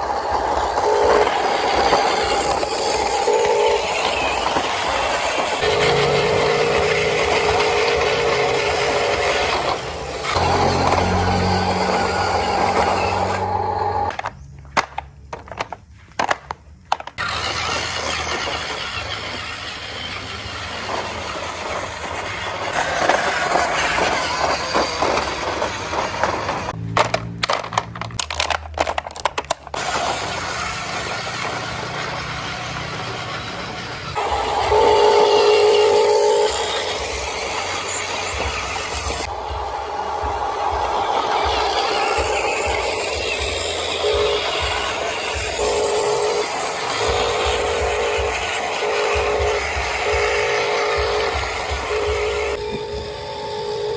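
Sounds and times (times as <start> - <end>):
toy truck electric motor whine: 0.0 - 14.5, 16.9 - 53.9
rocks crunching and rattling: 22.8 - 30.2.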